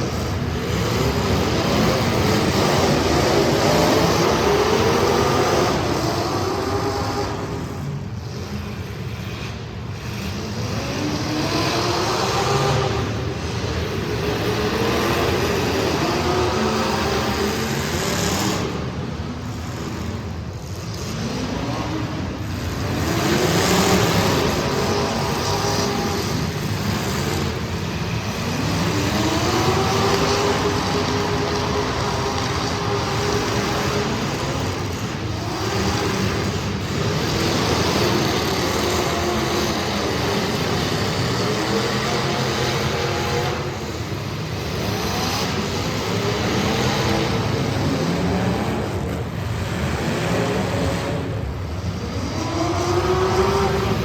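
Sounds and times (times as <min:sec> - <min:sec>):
race car engines running hard: 0:00.0 - 0:54.0.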